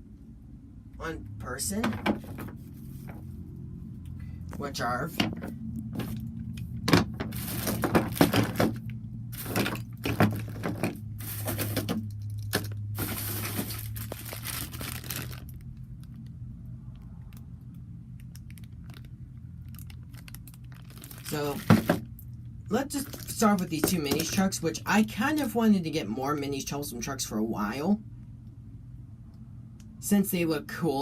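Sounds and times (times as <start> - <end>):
low hum: 0.0 - 23.4
packaging rustling and crinkling: 5.3 - 6.3, 6.9 - 16.3, 18.3 - 22.2, 23.0 - 24.4.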